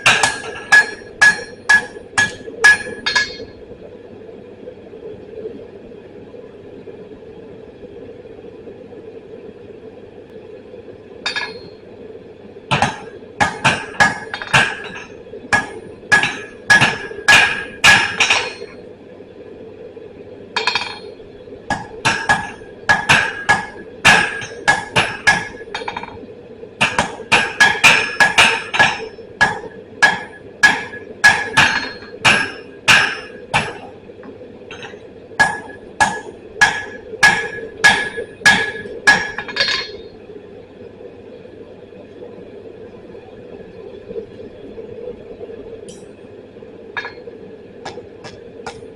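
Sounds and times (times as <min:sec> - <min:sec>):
hammer striking steel on anvil: 0:00.0 - 0:03.5, 0:11.3 - 0:11.7, 0:12.7 - 0:18.8, 0:20.6 - 0:21.1, 0:21.7 - 0:26.2, 0:26.8 - 0:33.9, 0:34.7 - 0:40.0, 0:47.0 - 0:47.2, 0:47.9 - 0:48.8
steady hum: 0:00.0 - 0:48.9.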